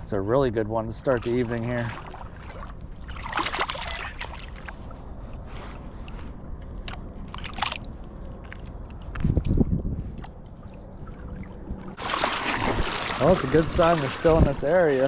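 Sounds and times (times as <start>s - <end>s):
water sloshing and splashing: 0.8s - 15.0s
steady low rumble: 4.3s - 12.0s.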